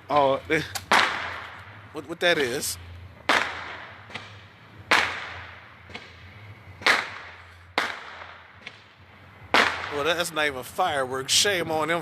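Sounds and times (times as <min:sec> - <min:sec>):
loud sharp bangs with echo: 0:00.8 - 0:02.0, 0:03.2 - 0:10.5.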